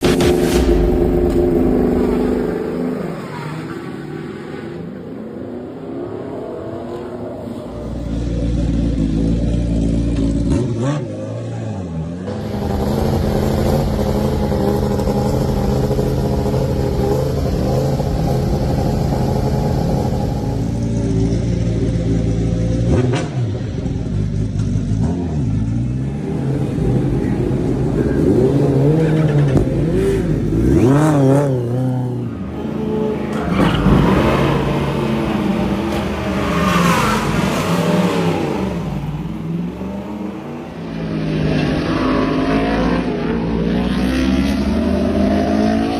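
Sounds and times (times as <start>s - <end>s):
motorbike engine at high revs: 8.3s - 33.2s.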